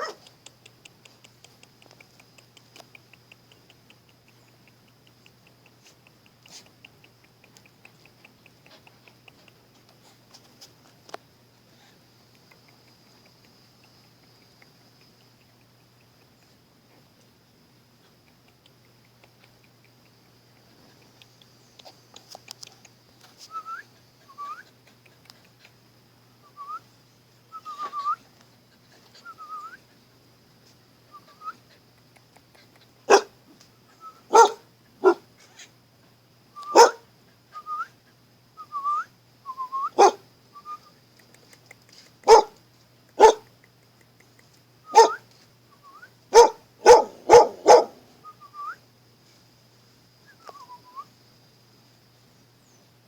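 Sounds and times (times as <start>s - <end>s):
dog barking: 0.0s - 0.3s, 33.1s - 33.3s, 34.3s - 35.2s, 36.7s - 37.0s, 40.0s - 40.2s, 42.3s - 42.6s, 43.2s - 43.5s, 44.9s - 45.2s, 46.3s - 48.1s
dog whining: 45.0s - 45.2s, 46.4s - 48.0s.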